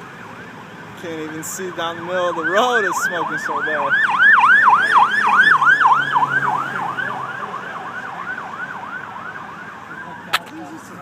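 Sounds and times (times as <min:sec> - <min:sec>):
emergency siren yelping: 0:02.3 - 0:10.4.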